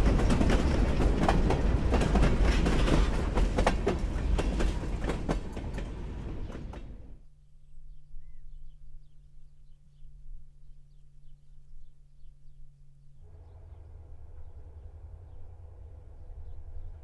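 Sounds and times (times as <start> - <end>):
train wheels clattering on rails: 0.0 - 7.2
low rumble: 13.2 - 17.0.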